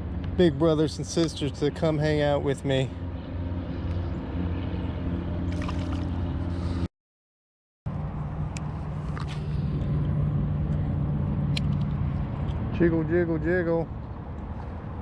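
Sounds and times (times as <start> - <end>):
water sloshing around a kayak: 5.5 - 6.2.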